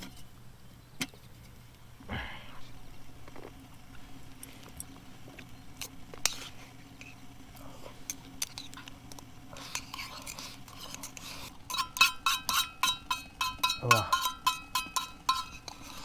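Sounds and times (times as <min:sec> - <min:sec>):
cookware and utensils clinking: 0:09.6 - 0:16.0.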